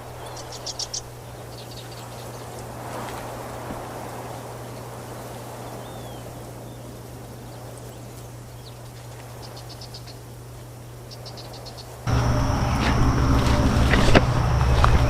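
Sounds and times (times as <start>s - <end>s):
bird chirping: 0.0s - 2.8s, 4.6s - 13.6s
low hum: 0.0s - 15.0s
loud noise with high whine: 12.1s - 15.0s.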